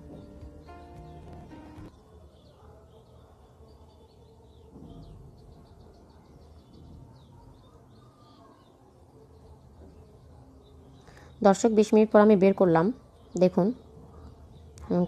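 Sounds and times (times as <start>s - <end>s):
music: 0.0s - 2.2s
birds chirping: 0.0s - 15.0s.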